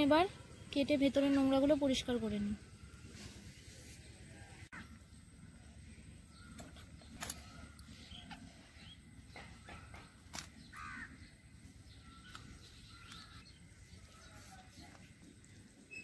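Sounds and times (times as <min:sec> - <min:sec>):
birdsong: 0:00.0 - 0:16.0
crow cawing: 0:10.7 - 0:11.2.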